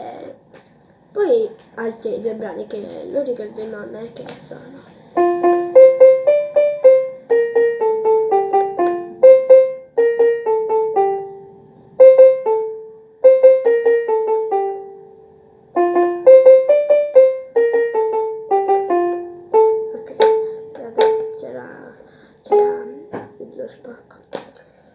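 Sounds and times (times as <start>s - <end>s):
electronic keyboard piano melody: 5.0s - 23.9s.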